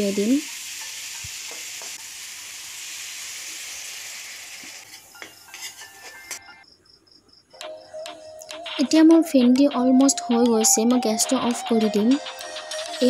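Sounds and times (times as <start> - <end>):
food sizzling in a pan: 0.0 - 6.4
metal spoon scraping a pan: 4.6 - 6.6
faint music: 7.5 - 13.0.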